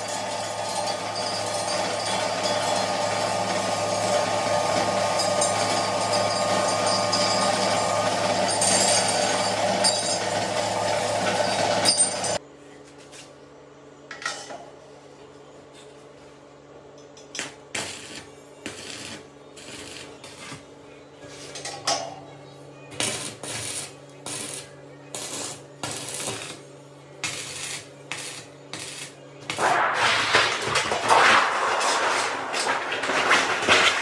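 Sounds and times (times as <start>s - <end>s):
sieve clinking and rattling: 29.6s - 34.0s.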